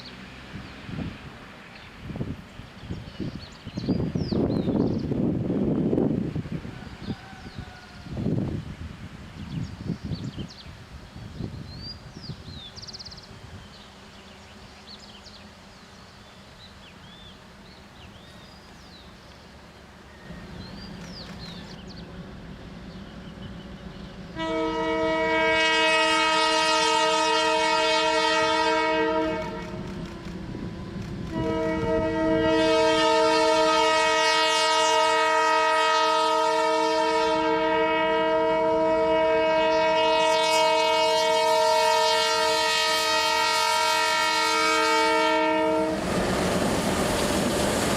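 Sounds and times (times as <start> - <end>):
train rumbling: 0.0 - 47.9
birds chirping faintly: 11.4 - 24.4
locomotive horn blasts: 24.3 - 46.0.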